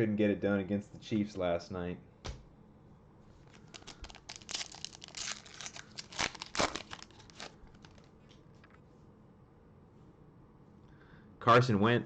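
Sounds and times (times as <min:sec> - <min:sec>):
wrapper tearing and crinkling: 0:03.4 - 0:08.1.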